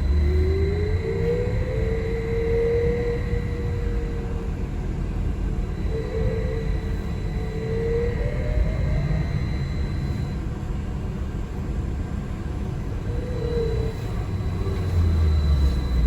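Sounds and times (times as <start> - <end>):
brief whine: 0.0 - 4.8, 5.4 - 10.6, 13.0 - 16.0
bus cabin rumble: 11.2 - 16.0.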